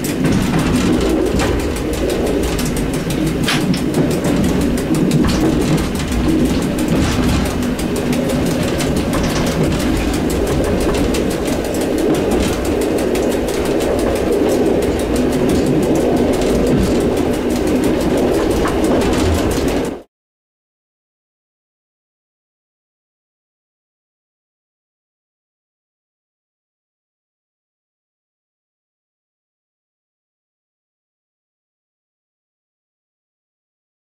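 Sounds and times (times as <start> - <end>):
train rumbling on rails: 0.0 - 20.1.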